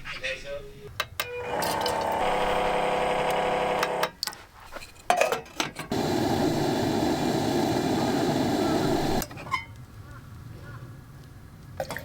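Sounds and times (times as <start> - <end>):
small motor humming: 1.5 - 4.1, 5.9 - 9.2
steady rushing noise: 5.9 - 9.2.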